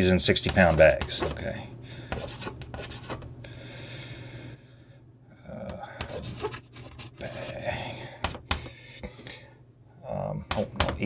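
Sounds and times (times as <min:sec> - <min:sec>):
pen scratching on paper: 0:00.4 - 0:01.4, 0:02.1 - 0:03.2, 0:06.0 - 0:07.6.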